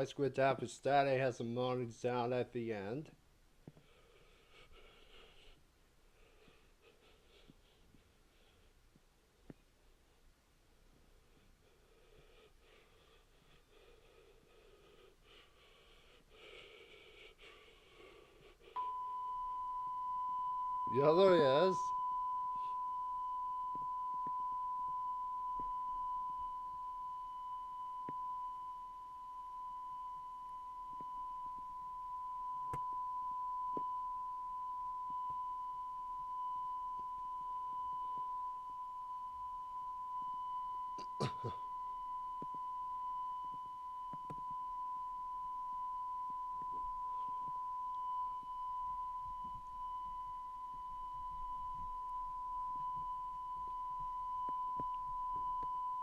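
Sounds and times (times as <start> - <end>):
faint tape hiss: 0.0 - 56.0
steady high tone: 18.8 - 56.0.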